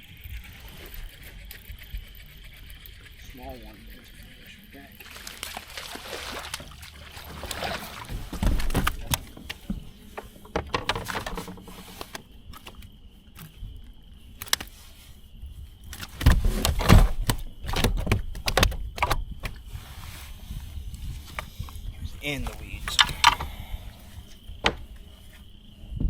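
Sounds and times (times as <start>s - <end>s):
gear knocking on plastic kayak: 7.4s - 12.9s, 16.0s - 19.7s.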